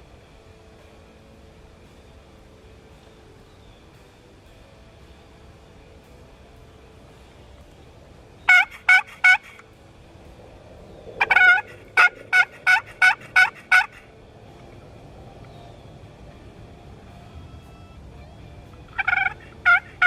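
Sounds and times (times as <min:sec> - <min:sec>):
turkey yelps: 0:08.5 - 0:09.6, 0:11.2 - 0:14.1, 0:18.9 - 0:20.0.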